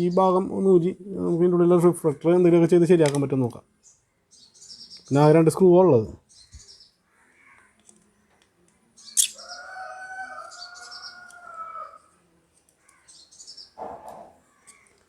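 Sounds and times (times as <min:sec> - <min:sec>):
birds chirping: 0:03.7 - 0:12.1, 0:12.8 - 0:13.8.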